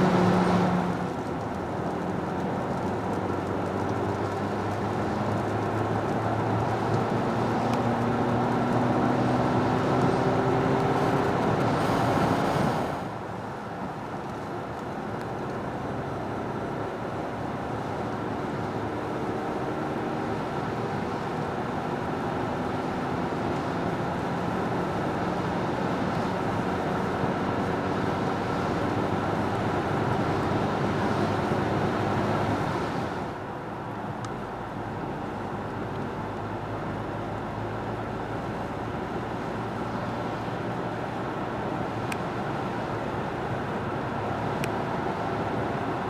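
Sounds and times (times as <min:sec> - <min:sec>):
car engine accelerating: 0:00.0 - 0:13.2, 0:15.2 - 0:46.0.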